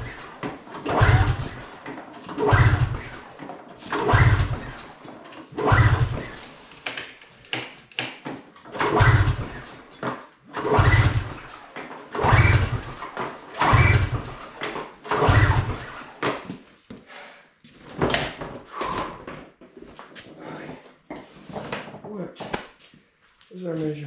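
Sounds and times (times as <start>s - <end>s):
snowmobile engine cranking: 0.0s - 7.3s, 8.7s - 9.9s, 10.5s - 16.2s
recoil starter pulls: 0.0s - 16.4s.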